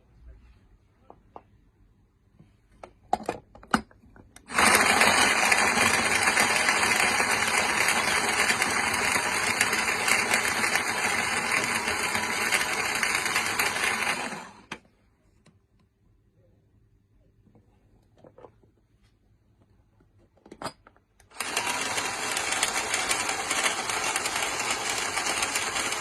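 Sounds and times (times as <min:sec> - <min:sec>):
electric grinder motor running: 0:04.5 - 0:14.7, 0:21.3 - 0:26.0.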